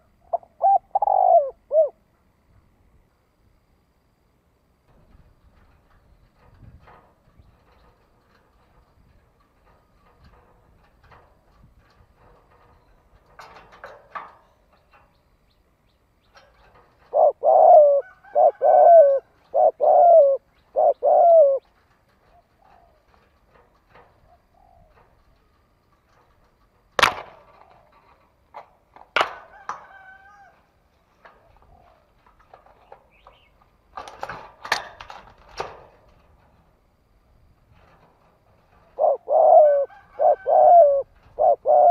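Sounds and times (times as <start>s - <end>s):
dove cooing: 0.0s - 2.1s, 16.4s - 23.4s, 24.2s - 25.4s, 38.7s - 41.9s.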